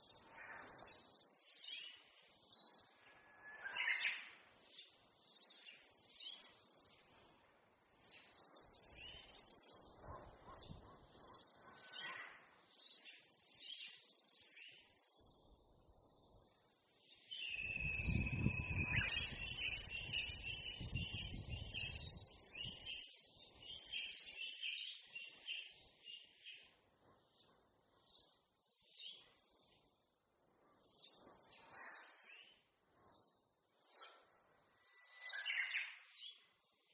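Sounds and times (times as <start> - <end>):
songbirds chirping and trilling: 0.0 - 36.9.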